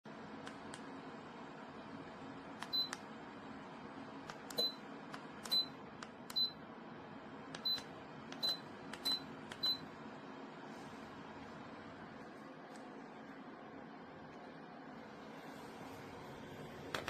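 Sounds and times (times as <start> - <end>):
faint steady hum: 0.1 - 17.0
heater button clicks: 0.4 - 1.0, 2.5 - 3.1, 4.2 - 6.6, 7.5 - 9.8.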